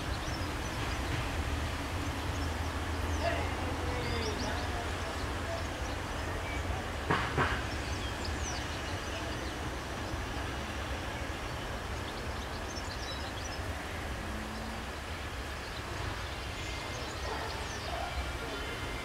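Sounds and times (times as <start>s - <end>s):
railcar low rumble: 0.0s - 19.0s
short sharp knock: 7.1s - 7.7s.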